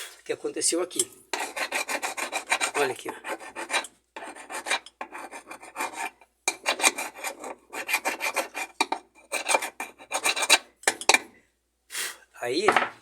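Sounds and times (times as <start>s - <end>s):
scrubbing rust off metal part: 1.3s - 11.4s.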